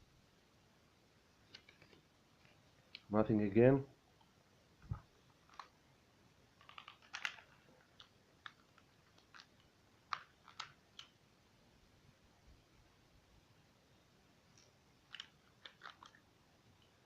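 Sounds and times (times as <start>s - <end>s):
toy gun clicks and rattles: 6.6s - 11.1s.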